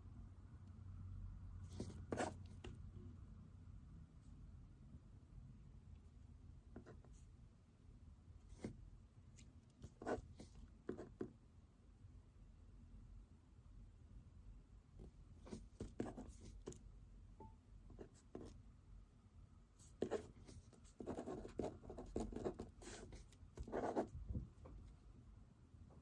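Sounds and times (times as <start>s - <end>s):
low room hum: 0.0s - 26.0s
pen scratching on paper: 1.7s - 2.8s, 9.8s - 11.3s, 15.0s - 16.8s, 18.0s - 18.6s, 19.8s - 24.2s.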